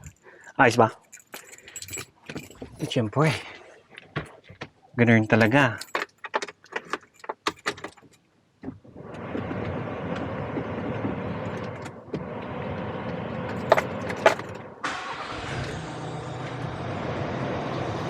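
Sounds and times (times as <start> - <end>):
van engine running: 9.0 - 18.0.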